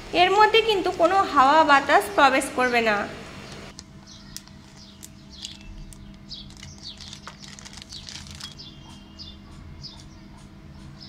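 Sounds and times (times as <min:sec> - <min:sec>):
small birds chirping: 0:02.6 - 0:11.0
plastic bag clicks: 0:03.7 - 0:08.6.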